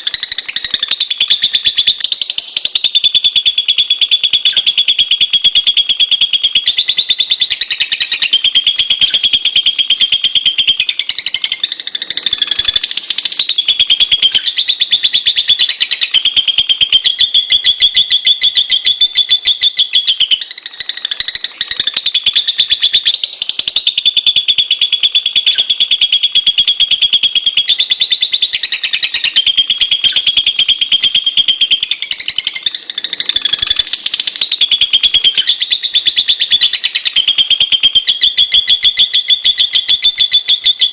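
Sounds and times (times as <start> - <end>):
lovebird chattering: 0.0 - 40.9.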